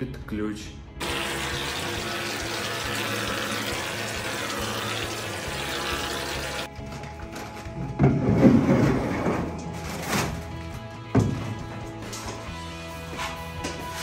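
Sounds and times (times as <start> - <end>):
quiet background music: 0.0 - 14.0
water running from a tap: 1.0 - 6.7.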